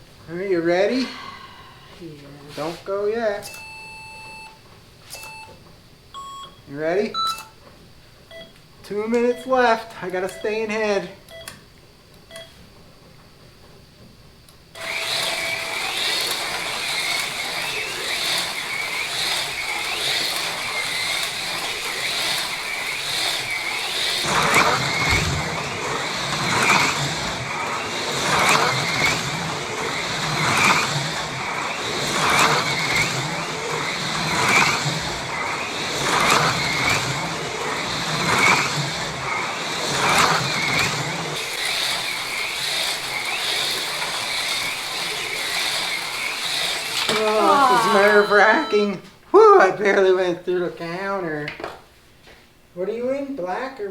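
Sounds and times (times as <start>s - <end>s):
slot car electric motors whining: 14.6s - 49.0s.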